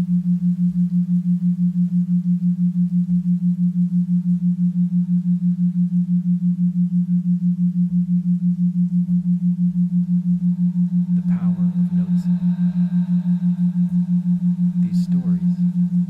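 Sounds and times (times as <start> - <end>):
low pulsing drone tone: 0.0 - 16.0.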